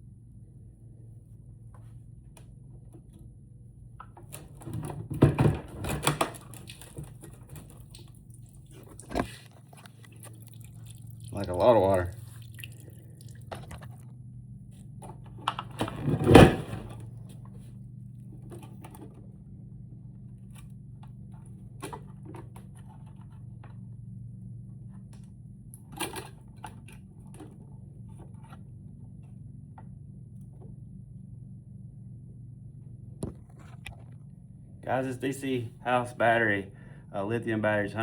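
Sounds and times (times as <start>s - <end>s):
low hum: 0.0s - 38.0s
clicks and knocks of objects: 4.0s - 10.5s
clatter: 15.0s - 17.6s.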